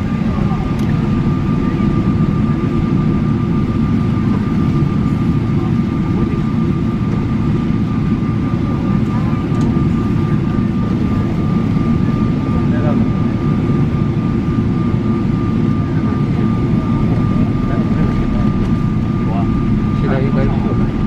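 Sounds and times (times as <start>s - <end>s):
airliner cabin rumble: 0.0s - 21.0s
thin steady whine: 14.3s - 21.0s.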